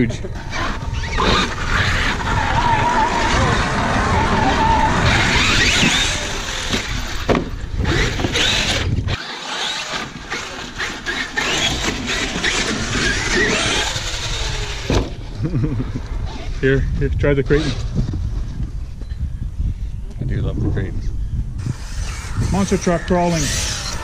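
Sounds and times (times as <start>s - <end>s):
electric motors whining: 0.3s - 15.3s, 21.6s - 24.0s.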